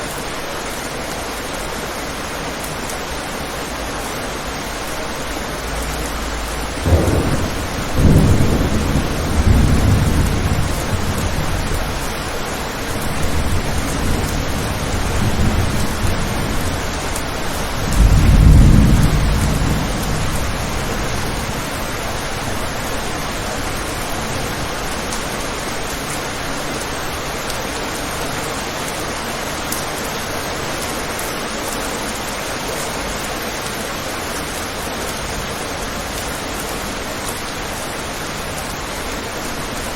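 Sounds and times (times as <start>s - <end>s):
rain on a window: 0.0s - 39.9s
thunder rumbling: 4.9s - 25.4s.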